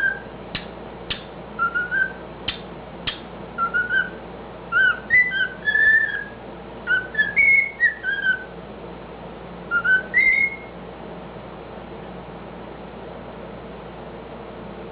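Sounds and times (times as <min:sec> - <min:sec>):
cockatiel whistling a tune: 0:00.0 - 0:00.3, 0:01.1 - 0:08.5, 0:09.7 - 0:10.7.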